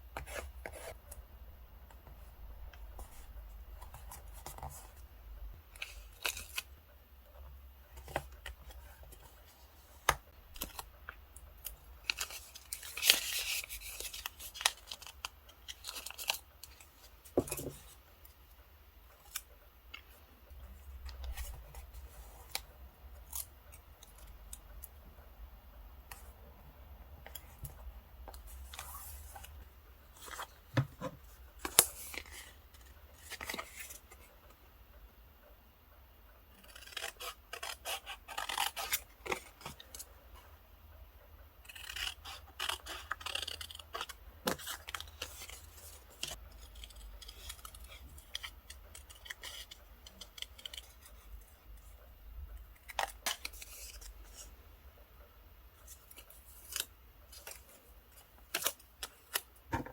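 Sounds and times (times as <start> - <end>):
scissors cutting paper: 36.6 - 39.7, 41.6 - 51.2.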